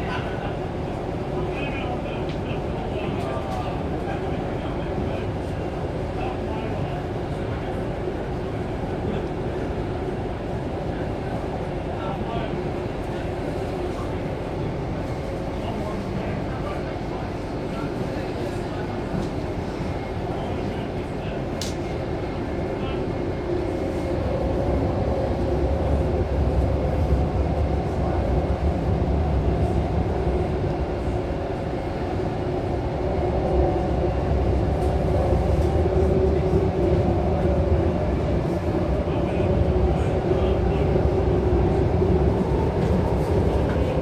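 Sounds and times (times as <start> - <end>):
constant hum: 0.0 - 44.0
train rumbling in tunnel: 0.0 - 44.0.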